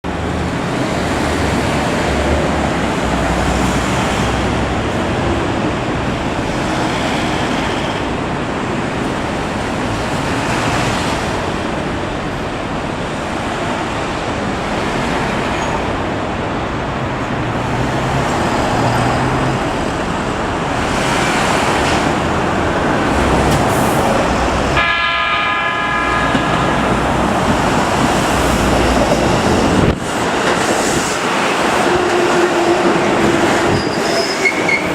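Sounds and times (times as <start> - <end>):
electric train rumbling: 0.0 - 34.9
train horn: 24.8 - 27.3.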